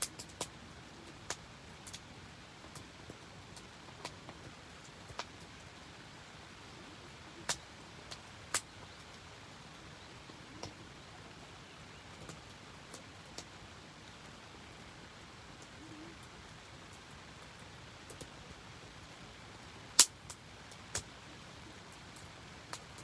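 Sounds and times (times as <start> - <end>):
wood fire crackling: 0.0 - 9.8, 16.2 - 23.0
steady rain: 0.0 - 23.0.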